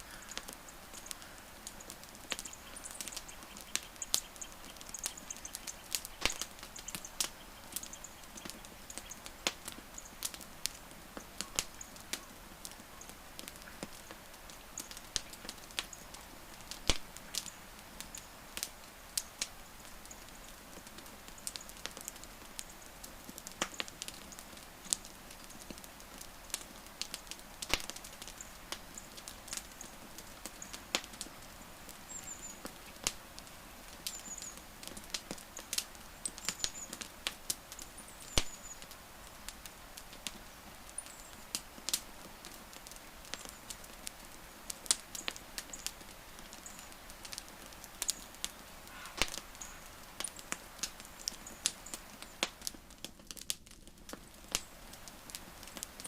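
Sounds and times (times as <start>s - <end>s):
campfire crackling: 0.0s - 56.0s
faint high chirps: 48.1s - 50.4s.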